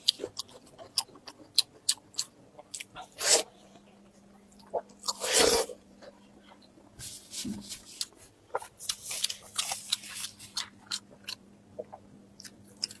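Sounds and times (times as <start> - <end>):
close chewing and biting: 0.0 - 3.5, 7.5 - 13.0
faint steady hum: 0.0 - 13.0.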